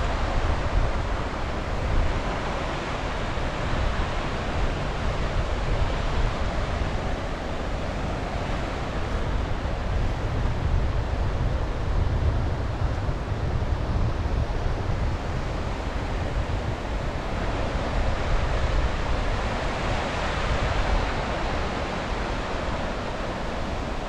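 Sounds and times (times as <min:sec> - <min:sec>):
sea waves washing on shore: 0:00.0 - 0:24.0
wind buffeting microphone: 0:00.0 - 0:24.0.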